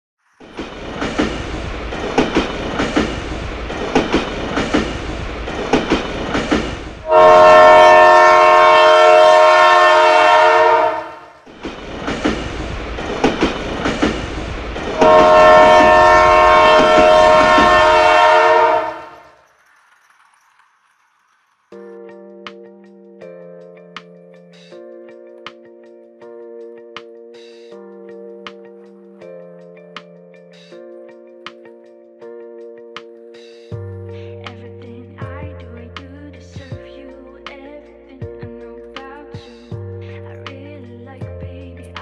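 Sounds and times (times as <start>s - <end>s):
train wheels clattering: 0.4s - 10.6s, 11.3s - 21.9s
loud train horn: 7.0s - 11.5s, 14.9s - 19.4s.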